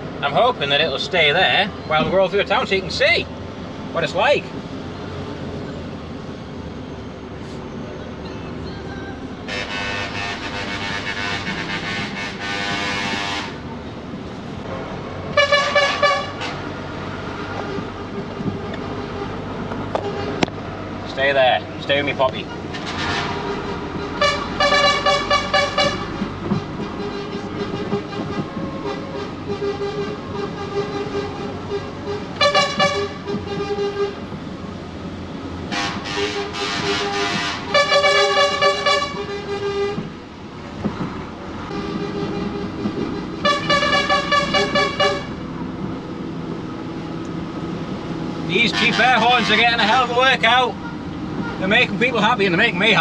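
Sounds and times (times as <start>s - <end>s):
road noise: 0.0s - 53.0s
truck engine: 0.0s - 53.0s
lorry air horn blasts: 9.5s - 13.6s, 15.4s - 16.6s, 22.8s - 26.1s, 26.9s - 34.2s, 35.7s - 40.0s, 41.7s - 45.4s.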